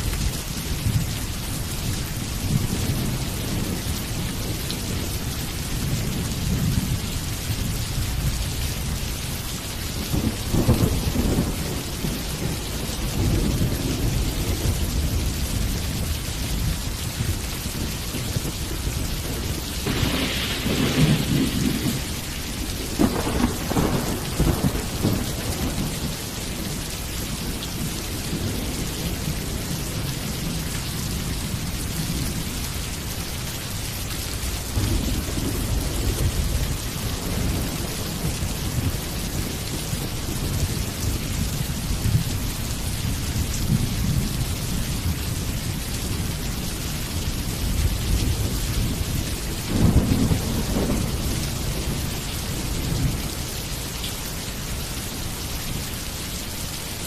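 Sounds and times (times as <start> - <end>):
steady rain: 0.0 - 57.0
thunder rumbling: 10.0 - 33.2, 34.4 - 42.8, 47.4 - 53.5.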